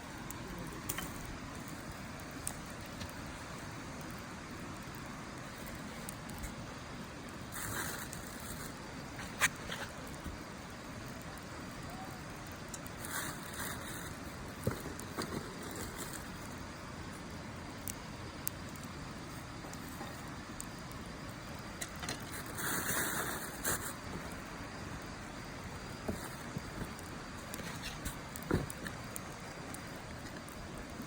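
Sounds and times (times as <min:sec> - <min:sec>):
wood fire crackling and popping: 0:00.0 - 0:31.0
hiss-like burst: 0:07.5 - 0:08.8, 0:22.2 - 0:25.2.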